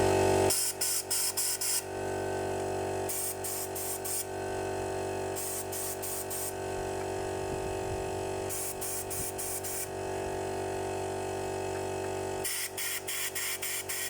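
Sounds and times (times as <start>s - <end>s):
steady hum: 0.0s - 11.8s
spray bottle hissing: 0.5s - 1.8s, 3.1s - 4.3s, 5.4s - 6.6s, 8.5s - 9.9s, 12.4s - 14.0s.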